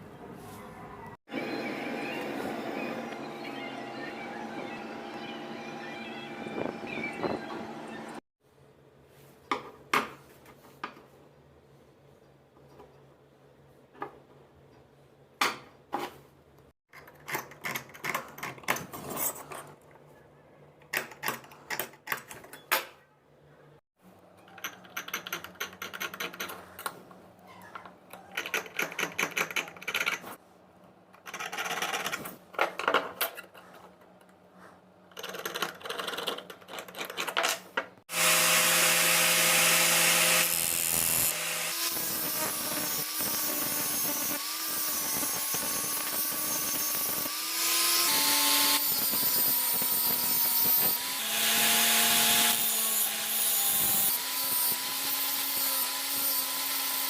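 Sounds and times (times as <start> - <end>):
power tool running: 38.1 - 57.0.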